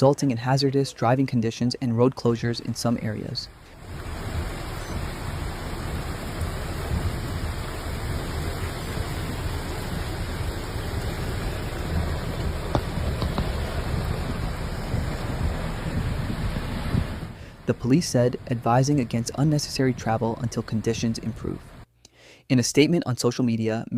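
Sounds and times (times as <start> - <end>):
heavy rain falling: 3.4 - 21.8.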